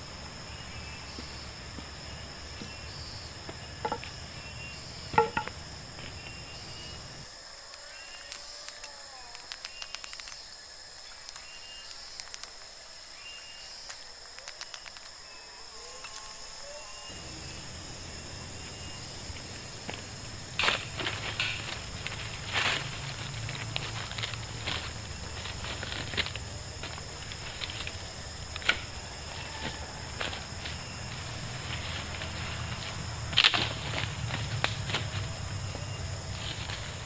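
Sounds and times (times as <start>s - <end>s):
insect chorus buzzing: 0.0s - 37.0s
sharp clicks and knocks: 5.1s - 5.6s.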